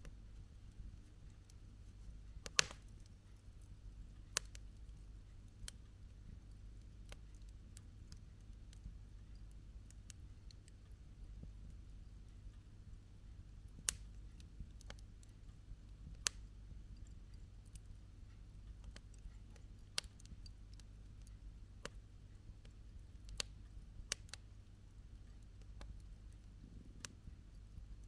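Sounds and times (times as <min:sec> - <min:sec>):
low steady rumble: 0:00.0 - 0:28.0
campfire crackling and popping: 0:02.4 - 0:03.2, 0:04.4 - 0:05.8, 0:13.5 - 0:17.9, 0:18.8 - 0:22.0, 0:23.0 - 0:24.4.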